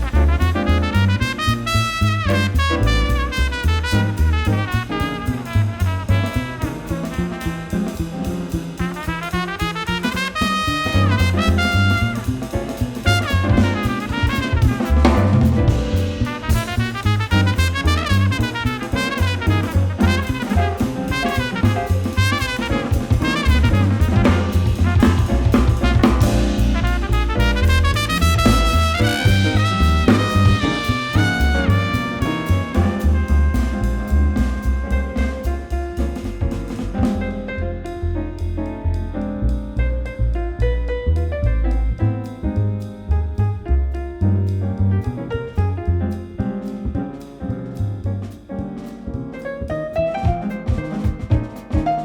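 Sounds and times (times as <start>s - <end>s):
brass horn fast runs: 0.0s - 37.4s
bass: 0.0s - 52.0s
drum kit: 0.0s - 52.0s.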